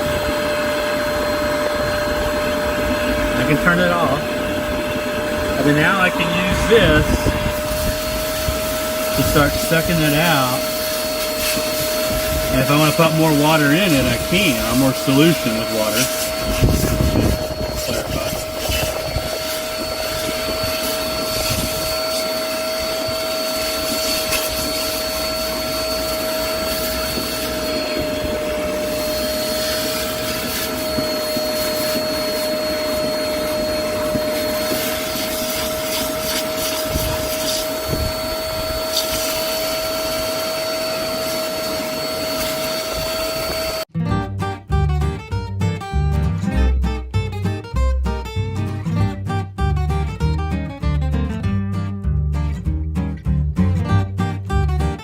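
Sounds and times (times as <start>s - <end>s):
spot cleaner suction motor whine: 0.0s - 43.9s.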